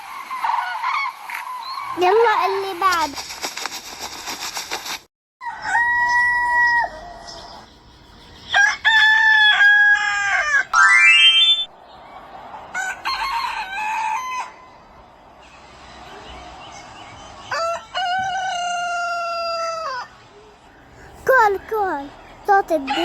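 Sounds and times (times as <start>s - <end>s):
roosters crowing: 5.4s - 7.6s, 8.5s - 11.1s, 12.0s - 20.3s.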